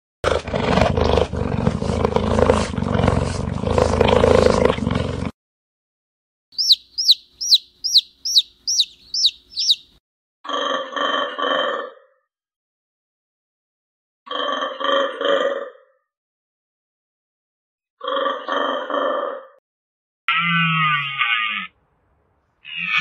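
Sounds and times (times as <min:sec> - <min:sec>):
animal roaring: 0:00.2 - 0:05.3
bird chirping: 0:06.6 - 0:10.0.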